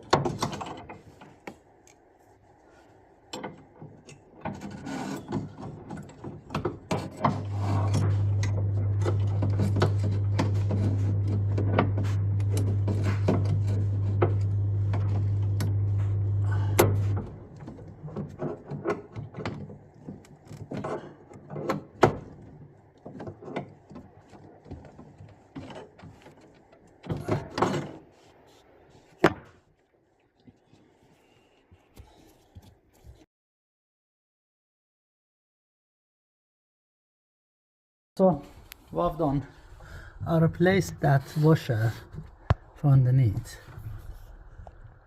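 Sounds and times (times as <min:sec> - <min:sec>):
steady low hum: 0:07.1 - 0:21.3.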